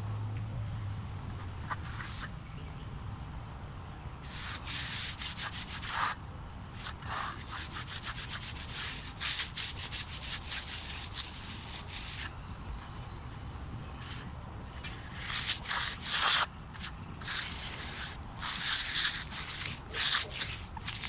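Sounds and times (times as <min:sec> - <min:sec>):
hand tool scraping concrete: 0:06.8 - 0:12.3, 0:14.8 - 0:21.0.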